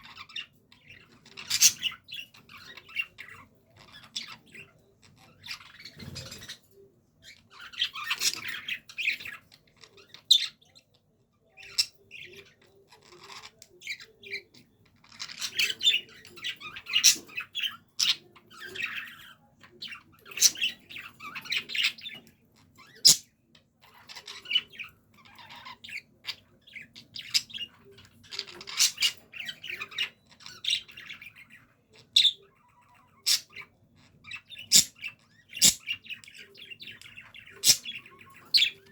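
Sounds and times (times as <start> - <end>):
budgerigars chattering: 0.0 - 6.6, 7.5 - 10.8, 11.6 - 22.2, 22.8 - 38.9
budgie chirps and squawks: 22.9 - 23.3, 34.4 - 36.2, 37.5 - 38.8.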